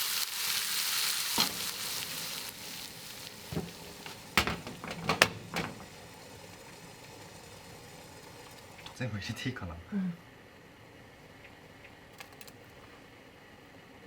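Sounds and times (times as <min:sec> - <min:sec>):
food sizzling in a frying pan: 0:00.0 - 0:10.2
utensils knocking against pan: 0:01.4 - 0:02.5, 0:03.5 - 0:07.3.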